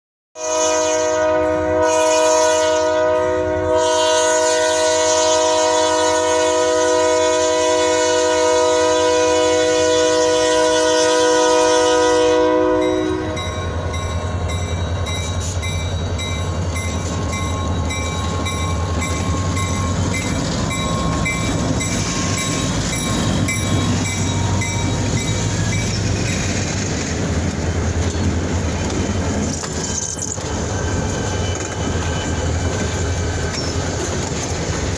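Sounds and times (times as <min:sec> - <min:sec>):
locomotive horn: 0:00.4 - 0:13.9
train rumbling past: 0:00.4 - 0:34.9
wheels clicking over rail joints: 0:13.9 - 0:34.9.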